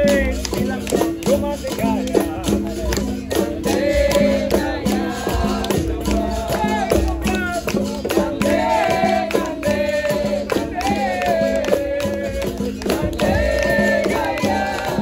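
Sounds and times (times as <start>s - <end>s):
tambourine rhythm: 0.0s - 15.0s
voices singing: 0.0s - 15.0s.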